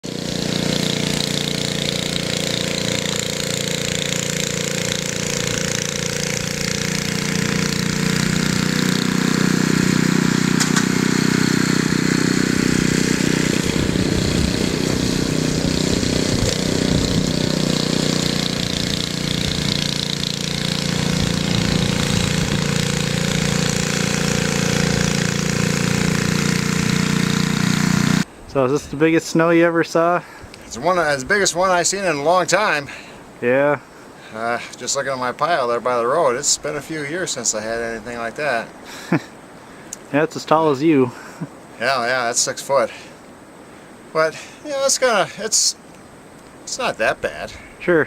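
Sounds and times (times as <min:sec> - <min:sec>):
engine running: 0:00.0 - 0:28.3.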